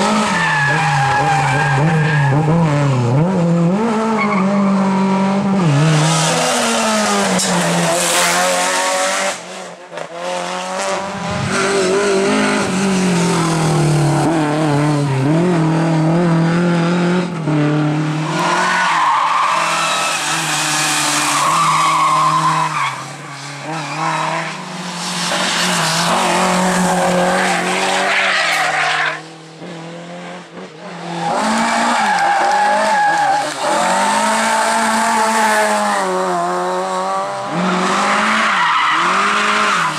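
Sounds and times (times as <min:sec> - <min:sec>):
tyres skidding and squealing: 0:00.0 - 0:05.0, 0:11.2 - 0:15.7, 0:18.0 - 0:29.4, 0:31.0 - 0:36.4, 0:37.3 - 0:39.9
rally car engines revving: 0:00.0 - 0:39.9.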